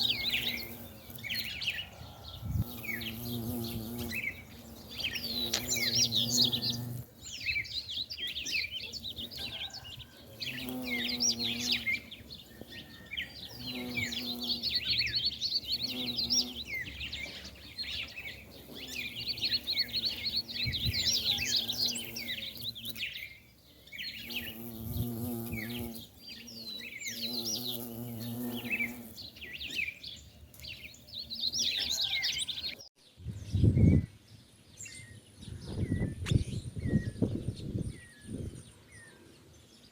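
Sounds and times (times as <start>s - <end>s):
bumblebees buzzing: 0.0s - 30.0s
birds chirping: 0.0s - 39.9s.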